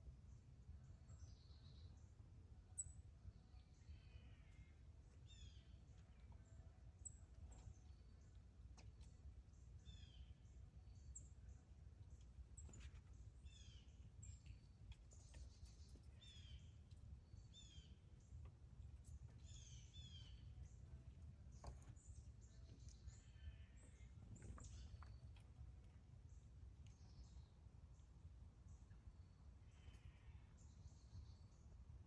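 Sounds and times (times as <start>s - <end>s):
bird chirping: 2.7s - 25.6s.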